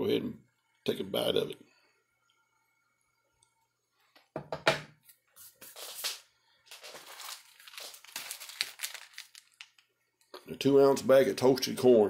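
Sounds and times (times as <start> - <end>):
packaging rustling: 5.7 - 9.9.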